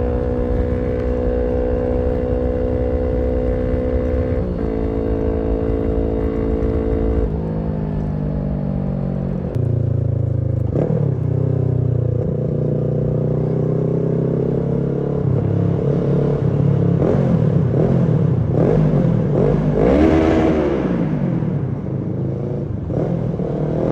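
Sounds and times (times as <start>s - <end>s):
motorcycle engine revving: 0.0s - 23.9s.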